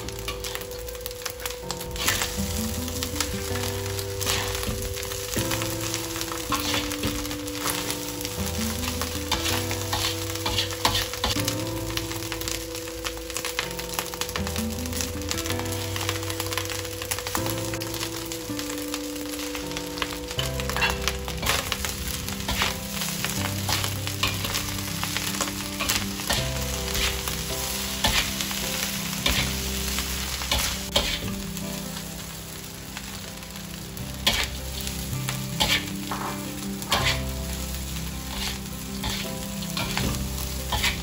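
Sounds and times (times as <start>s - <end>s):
metal spatula scraping wok: 0.0s - 11.5s, 19.4s - 31.4s, 34.2s - 41.0s
food sizzling in a wok: 0.0s - 41.0s.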